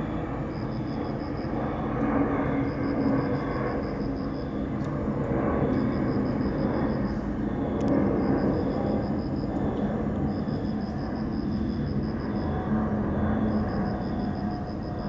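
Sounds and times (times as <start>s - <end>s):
insects chirping: 5.6s - 15.0s.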